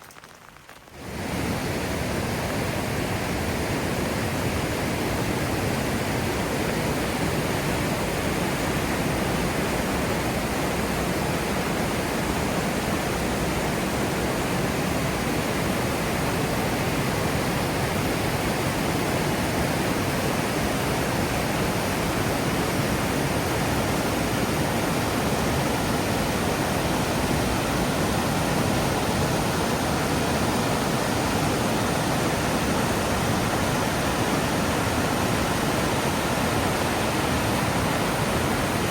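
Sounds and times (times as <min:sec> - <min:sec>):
heavy rain: 0:09.4 - 0:38.9.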